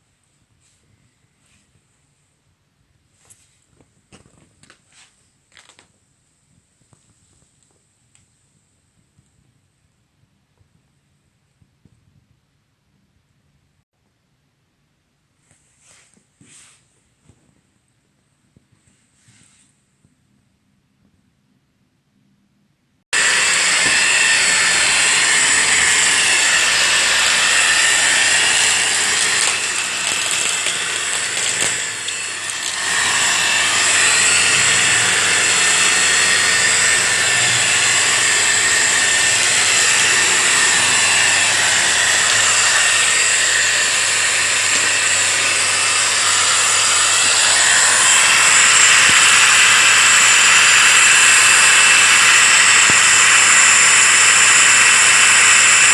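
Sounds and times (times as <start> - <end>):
upright vacuum cleaner whining: 23.1 - 55.9.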